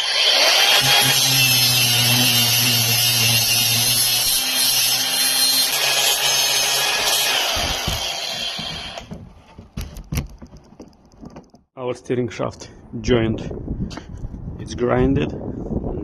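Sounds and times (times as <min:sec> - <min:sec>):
grinder disc cutting metal: 0:00.0 - 0:09.2.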